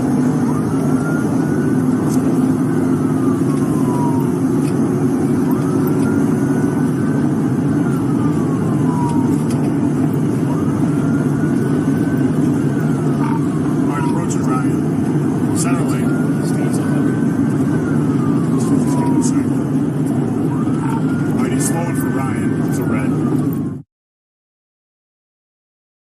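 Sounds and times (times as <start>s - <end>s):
car engine and road noise: 0.0s - 23.8s
police siren wailing: 0.0s - 23.9s.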